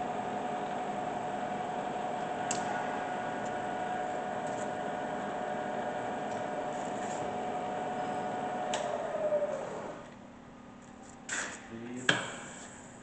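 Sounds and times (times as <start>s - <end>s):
milling machine whining and humming: 0.0s - 10.2s.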